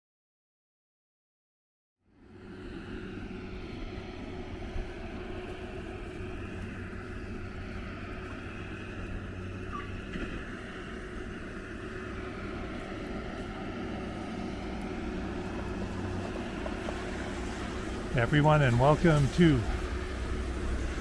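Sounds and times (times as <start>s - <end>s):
distant city traffic rumble: 2.3s - 21.0s
faint hum: 17.9s - 21.0s.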